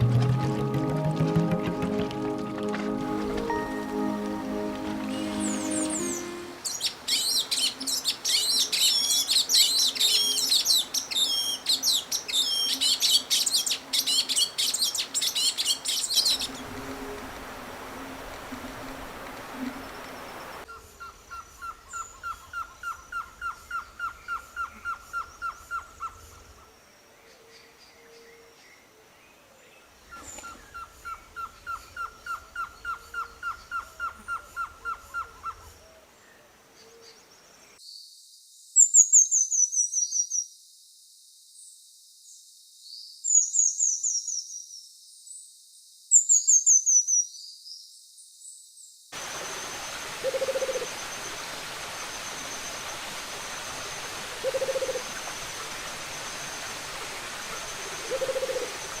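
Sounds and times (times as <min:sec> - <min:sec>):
bird song of falling notes: 0:00.0 - 0:20.6.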